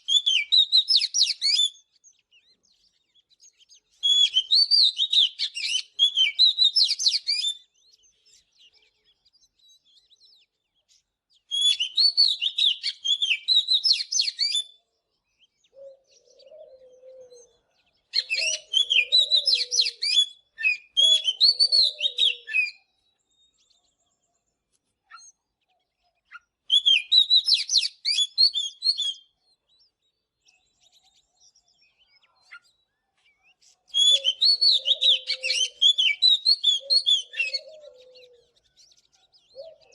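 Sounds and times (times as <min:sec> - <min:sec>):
bird singing whistles and chirps: 0:00.0 - 0:24.4, 0:25.1 - 0:39.9
low cooing: 0:15.8 - 0:17.6, 0:18.3 - 0:20.0, 0:36.8 - 0:38.5.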